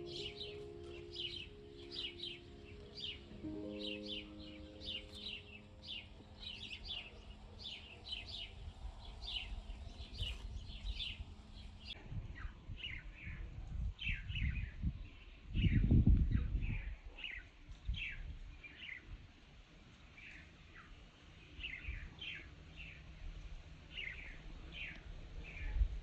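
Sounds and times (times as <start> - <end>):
soft piano notes: 0.0 - 12.0
small songbirds chirping: 0.0 - 19.3, 20.0 - 26.0.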